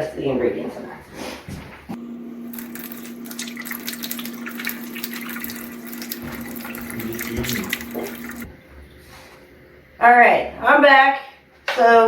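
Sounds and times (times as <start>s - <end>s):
steady hum: 1.8s - 11.7s
faucet running into sink: 2.4s - 8.6s
hands washing under water: 2.5s - 8.6s.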